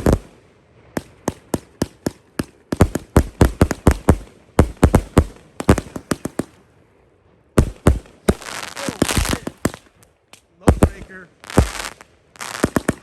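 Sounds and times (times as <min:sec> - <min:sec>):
firework bangs: 0:00.0 - 0:06.7, 0:07.6 - 0:13.0
firework crackling: 0:00.0 - 0:06.8, 0:07.6 - 0:13.0.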